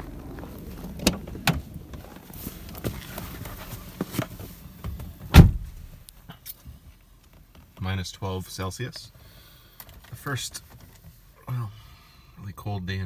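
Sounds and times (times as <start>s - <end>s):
car door clicks and knocks: 0.9s - 2.0s, 4.2s - 6.0s
car door shutting thump: 0.9s - 2.0s, 4.2s - 6.0s.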